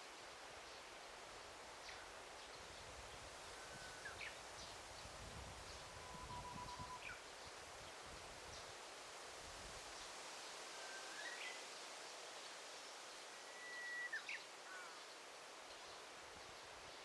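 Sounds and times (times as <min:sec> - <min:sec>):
faint forest hiss: 0:00.0 - 0:17.0
songbird whistling: 0:05.9 - 0:07.2, 0:13.5 - 0:14.9.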